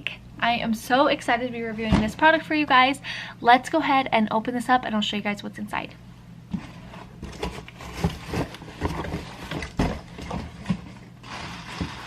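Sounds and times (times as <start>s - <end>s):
knocks and scrapes of handling: 6.5s - 12.0s.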